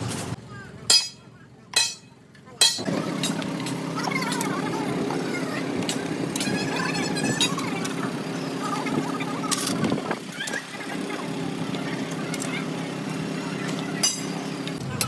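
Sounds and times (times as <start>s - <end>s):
mechanical hum: 0.0s - 15.0s
metal tools clinking: 14.0s - 14.4s.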